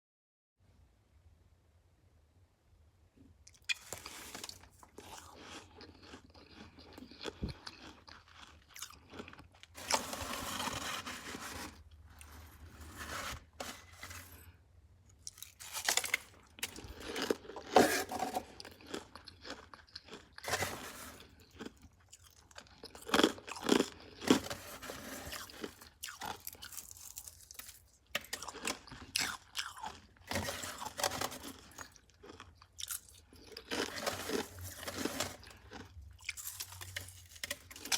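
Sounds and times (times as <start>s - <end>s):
person chewing crunchy frost: 3.5s - 37.9s.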